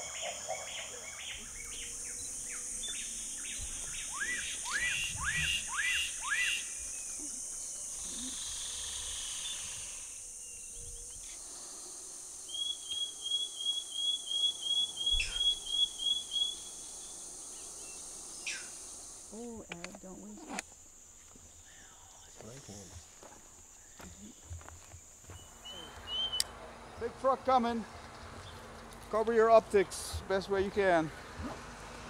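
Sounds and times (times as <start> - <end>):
insect drone: 0.0 - 32.0
bird whistling: 2.9 - 6.7, 12.5 - 16.7, 25.6 - 26.5.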